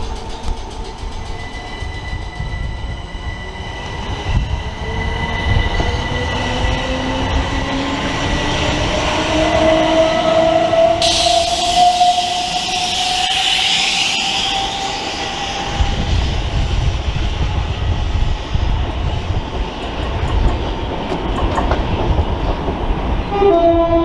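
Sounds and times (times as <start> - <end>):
train traction motors whining: 0.0 - 17.8
sudden hiss: 11.0 - 16.4.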